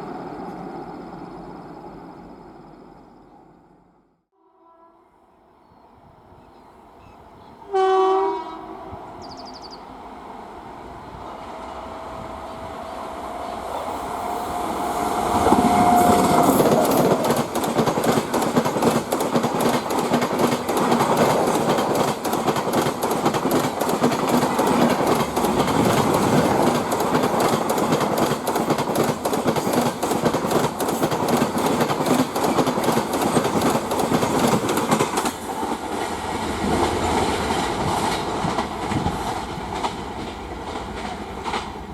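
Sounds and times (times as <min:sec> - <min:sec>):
train whine: 0:00.0 - 0:04.2, 0:04.8 - 0:41.9
train horn blast: 0:04.3 - 0:05.4, 0:07.6 - 0:09.2, 0:11.4 - 0:17.2
train wheels clattering over rail joints: 0:14.2 - 0:41.9.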